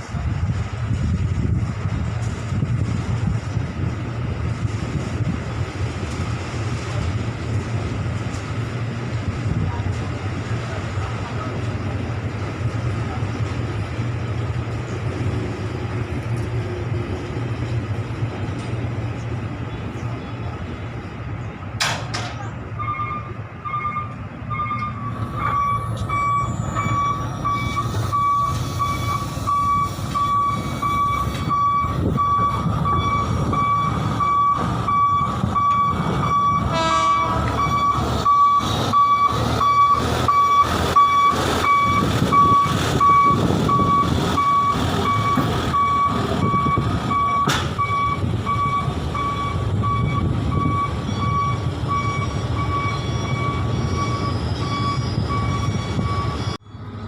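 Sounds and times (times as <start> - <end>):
diesel engine rumble: 0.0 - 57.0
back-up warning beeper: 22.8 - 56.6.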